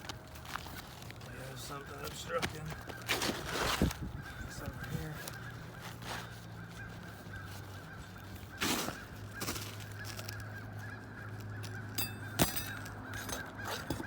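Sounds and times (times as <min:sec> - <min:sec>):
scrape on roof shingles: 0:00.5 - 0:04.0.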